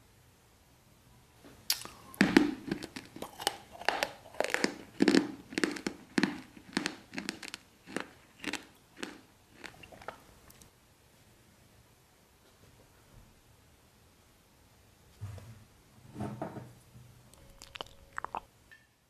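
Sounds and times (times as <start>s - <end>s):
crunchy chewing: 1.7s - 10.7s, 17.3s - 18.5s.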